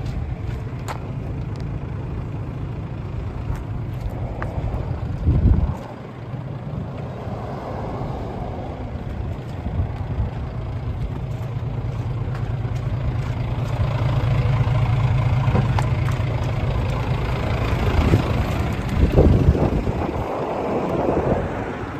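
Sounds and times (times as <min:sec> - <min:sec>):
diesel engine idling: 0:00.0 - 0:21.9.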